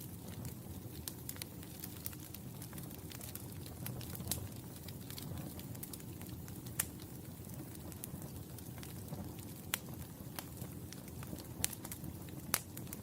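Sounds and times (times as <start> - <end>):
sharp pops of fire: 0.0 - 13.0
wood fire crackling: 0.0 - 13.0.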